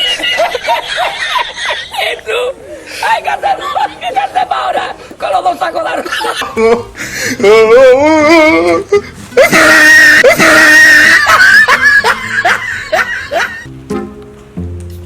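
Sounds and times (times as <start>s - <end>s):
person screaming and shrieking: 1.9s - 11.9s.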